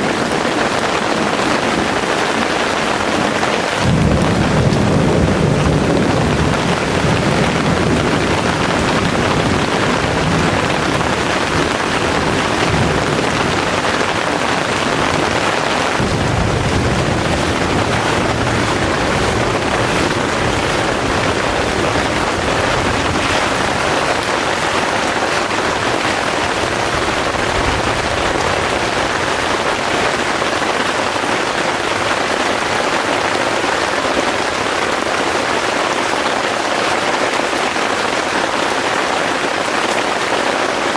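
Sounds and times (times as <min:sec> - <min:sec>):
heavy rain pouring: 0:00.0 - 0:40.9
thunder rumbling: 0:00.4 - 0:30.4.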